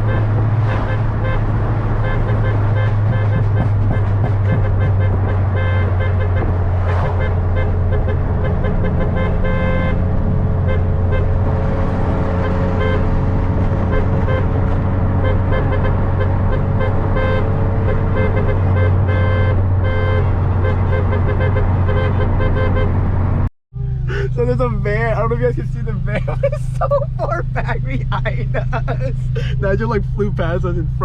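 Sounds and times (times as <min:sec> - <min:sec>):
road noise: 0:00.0 - 0:31.0
loud low exhaust drone: 0:23.8 - 0:31.0.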